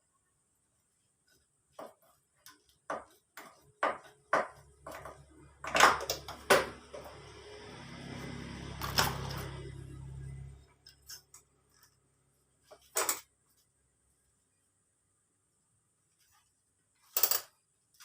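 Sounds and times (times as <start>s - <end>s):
metal parts and tools clinking: 10.8s - 12.0s, 12.7s - 13.3s, 17.0s - 18.0s.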